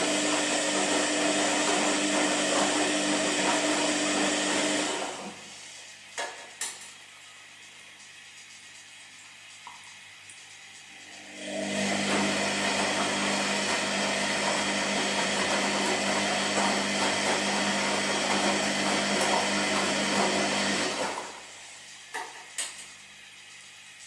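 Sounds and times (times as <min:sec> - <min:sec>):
washing machine drum turning: 0:11.0 - 0:21.4.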